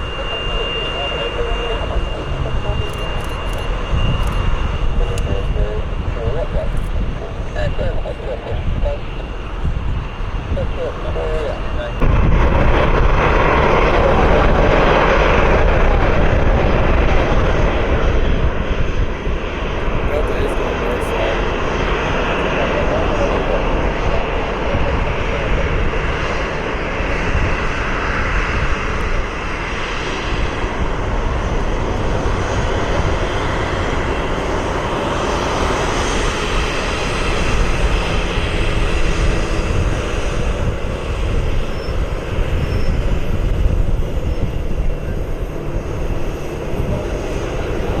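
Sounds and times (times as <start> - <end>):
jet airliner engines roaring: 0.0 - 48.0.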